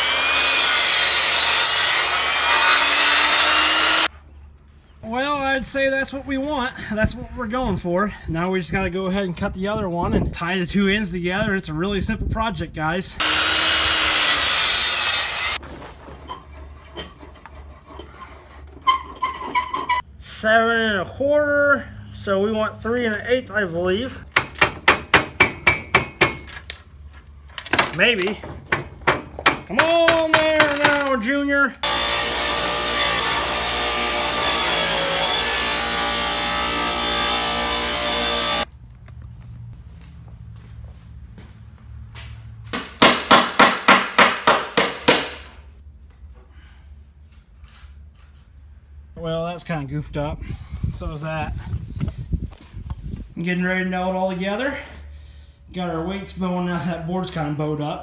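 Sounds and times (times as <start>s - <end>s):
power saw cutting wood: 0.0s - 4.1s, 13.2s - 15.6s, 31.8s - 38.7s.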